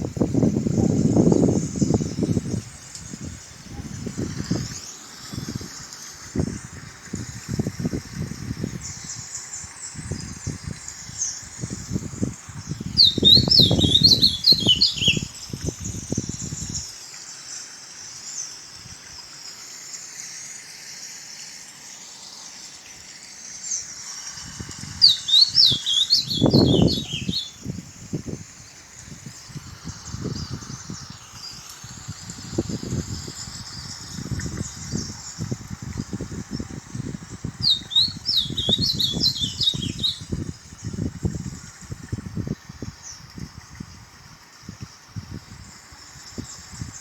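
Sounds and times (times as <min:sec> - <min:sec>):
background birds or insects: 0:00.0 - 0:47.0
songbird singing falling notes: 0:13.0 - 0:15.3, 0:25.0 - 0:27.7, 0:37.6 - 0:40.3.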